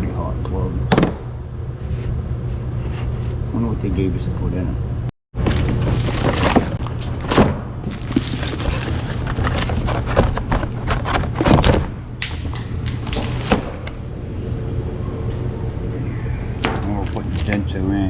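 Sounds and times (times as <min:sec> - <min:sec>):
steady low hum: 0:00.0 - 0:18.0
handling noises: 0:05.4 - 0:14.0, 0:16.6 - 0:17.8.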